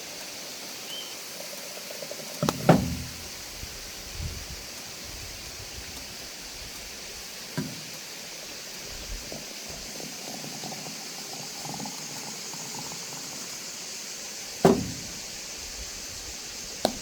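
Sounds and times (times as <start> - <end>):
liquid bubbling in a pot: 1.0 - 17.0
sharp knock: 14.6 - 15.2.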